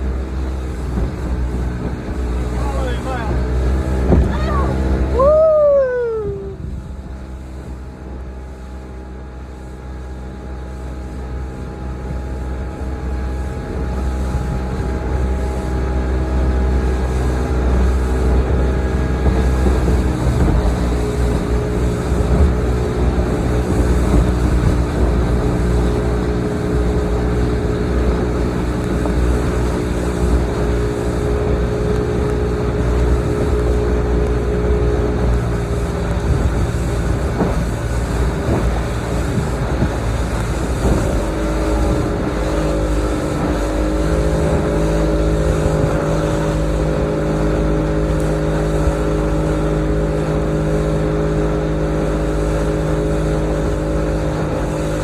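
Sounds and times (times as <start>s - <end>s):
low rumble: 0.0s - 8.8s
motorboat engine running: 0.0s - 55.0s.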